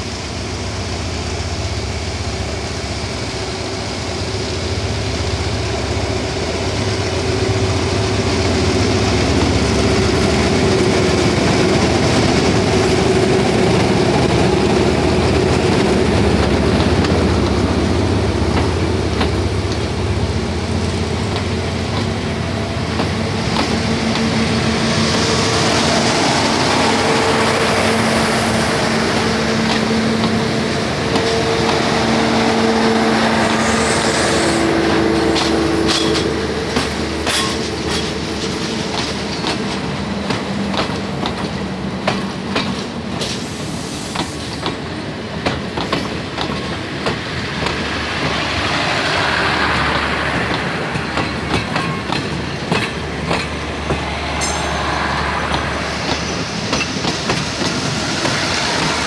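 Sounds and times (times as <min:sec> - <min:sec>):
train wheels rumbling on rail: 0:00.0 - 0:59.0
wheels clacking over rail joints: 0:10.6 - 0:24.4, 0:26.2 - 0:33.8, 0:34.9 - 0:43.5, 0:44.2 - 0:59.0.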